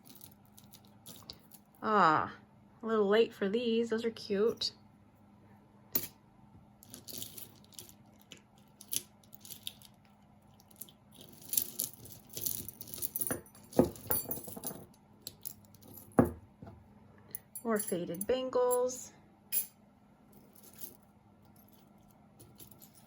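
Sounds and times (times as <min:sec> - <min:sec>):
jewelry clinking and rattling: 0:00.0 - 0:01.8, 0:06.8 - 0:16.6, 0:17.4 - 0:18.9, 0:19.5 - 0:23.0.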